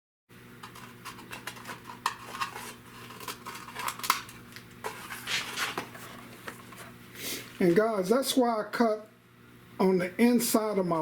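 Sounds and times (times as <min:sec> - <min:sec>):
plastic scrape: 0:00.6 - 0:07.0.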